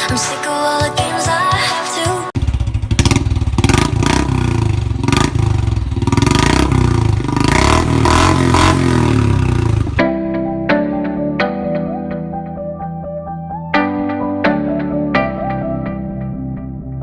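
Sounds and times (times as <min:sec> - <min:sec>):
motorcycle engine revving: 0:02.4 - 0:10.0.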